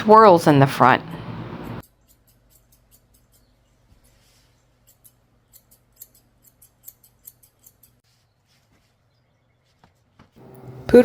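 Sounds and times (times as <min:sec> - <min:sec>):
scissors snipping hair: 0:01.7 - 0:04.2, 0:04.8 - 0:08.0.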